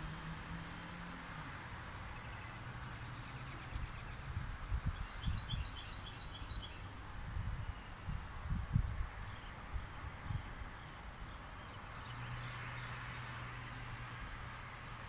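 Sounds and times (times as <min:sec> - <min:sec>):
small birds chirping: 0:02.1 - 0:08.2.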